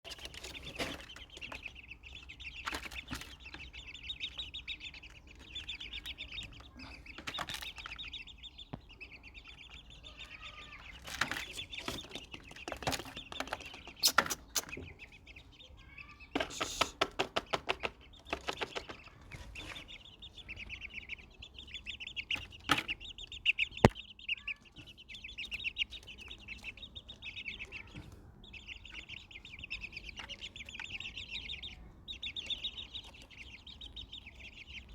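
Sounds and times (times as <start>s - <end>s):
birds twittering: 0.0s - 34.9s
sharp clicks and taps: 16.4s - 19.0s.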